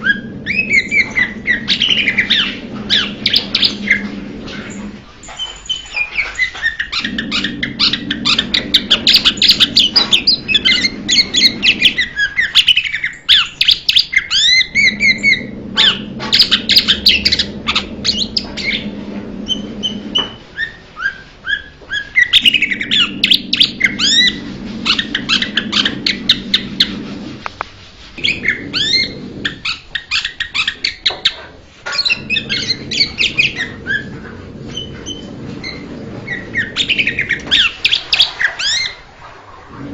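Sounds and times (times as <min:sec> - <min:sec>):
bird singing chirps and whistles: 0:00.0 - 0:04.1.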